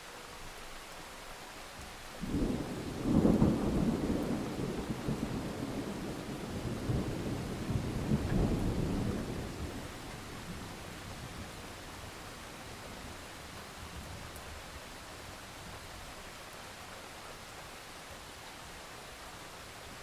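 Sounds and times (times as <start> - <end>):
steady rain: 0.0 - 20.0
rolling thunder: 2.2 - 11.5.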